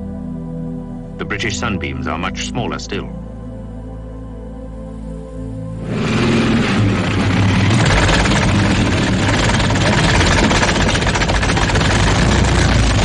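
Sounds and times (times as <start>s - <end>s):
racing car engine running: 5.8s - 13.0s.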